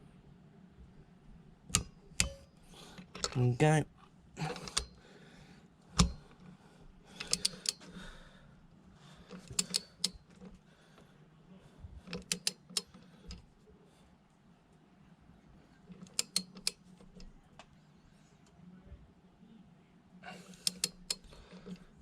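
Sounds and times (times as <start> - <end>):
ratchet wrench clicking: 7.2 - 7.9, 9.3 - 10.2, 12.1 - 12.9, 16.0 - 16.8, 20.5 - 21.5.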